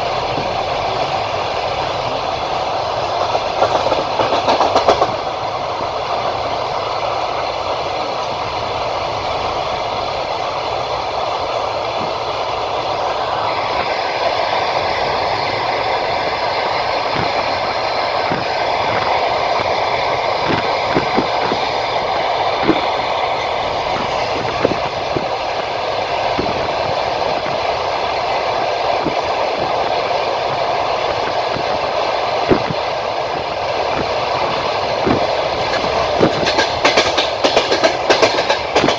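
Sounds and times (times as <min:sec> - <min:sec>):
train wheels rolling on rails: 0:00.0 - 0:38.9.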